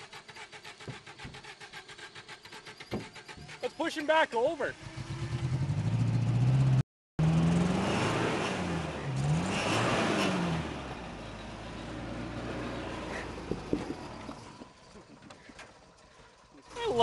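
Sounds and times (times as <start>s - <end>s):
pickup engine revving: 4.8s - 14.9s.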